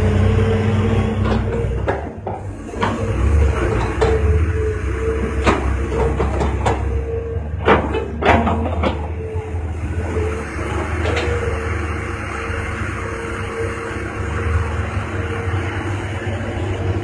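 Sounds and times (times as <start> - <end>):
diesel machinery engine rumble: 0.0 - 17.0
machinery whine: 0.0 - 17.0
sharp metal knocks and clanks: 7.6 - 9.1.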